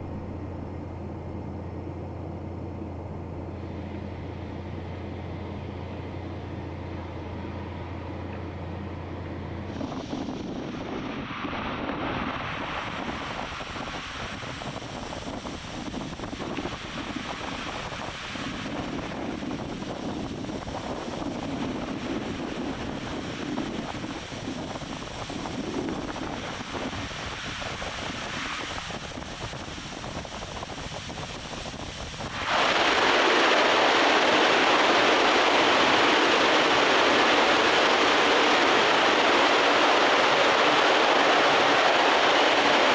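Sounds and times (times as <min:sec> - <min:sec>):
water deluge spraying: 0:08.9 - 0:42.9.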